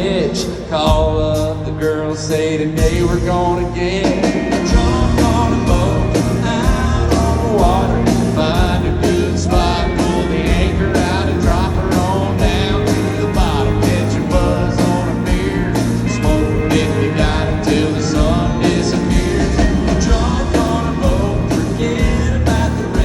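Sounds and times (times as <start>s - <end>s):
country-rock band playing: 0.0s - 23.0s
steady drum beat: 0.0s - 23.0s.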